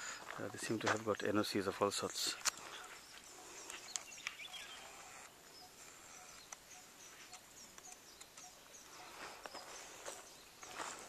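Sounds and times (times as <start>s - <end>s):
high bird chirps: 2.6s - 11.0s.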